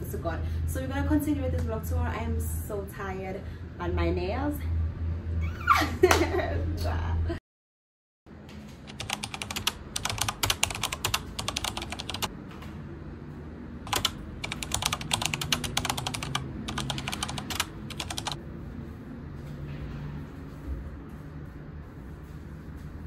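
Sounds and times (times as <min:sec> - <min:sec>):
rapid clicking taps: 0:08.9 - 0:12.3, 0:13.9 - 0:18.4.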